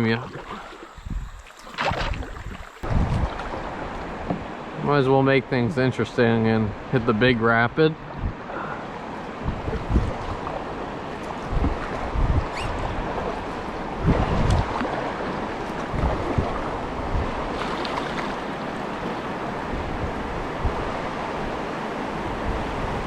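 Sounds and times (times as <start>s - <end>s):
wind buffeting microphone: 0.0s - 4.6s, 8.0s - 23.0s.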